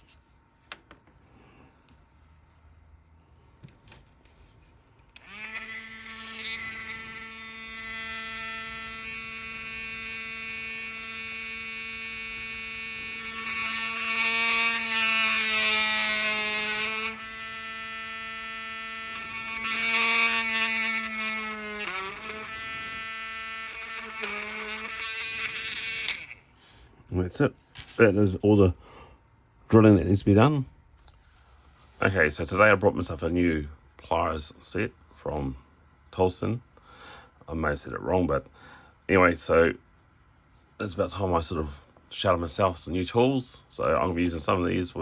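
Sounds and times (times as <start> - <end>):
rotary tool drilling plastic: 5.2 - 26.4.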